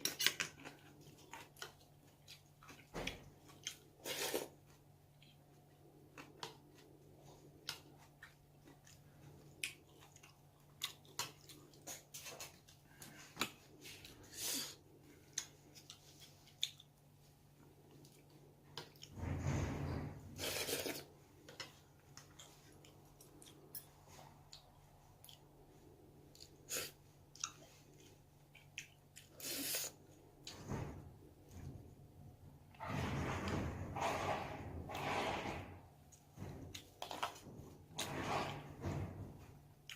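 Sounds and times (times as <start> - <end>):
chewing with small clicks: 0.0 - 4.0, 4.6 - 14.2, 15.1 - 19.1, 21.4 - 29.6.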